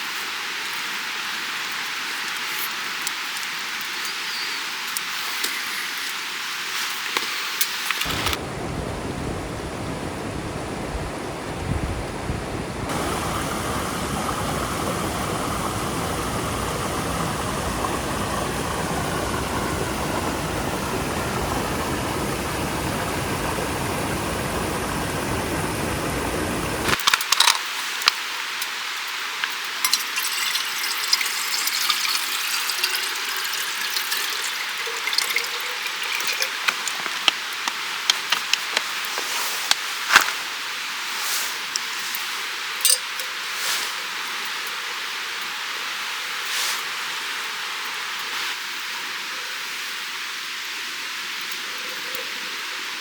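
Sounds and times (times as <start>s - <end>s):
stream water flowing: 0.0s - 11.7s, 12.4s - 53.0s
sharp clicks and taps: 36.4s - 39.0s.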